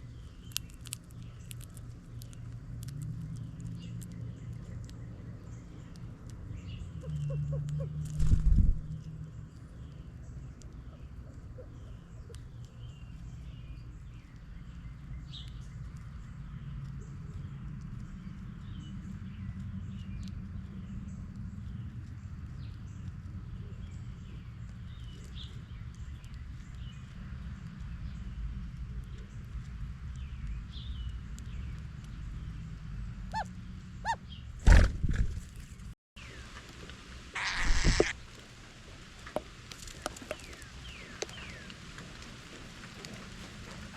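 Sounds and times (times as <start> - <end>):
steady low rumble: 0.0 - 36.4
small birds chirping: 0.0 - 36.6, 37.4 - 38.2, 39.7 - 43.9
short clear bird calls: 37.4 - 38.2.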